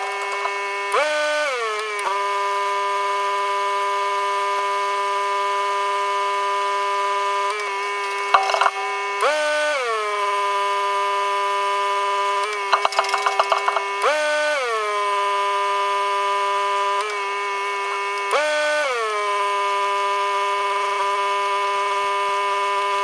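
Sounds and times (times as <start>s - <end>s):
small electric motor whine: 0.0s - 23.0s
sharp knocks: 8.3s - 9.4s, 12.7s - 14.0s.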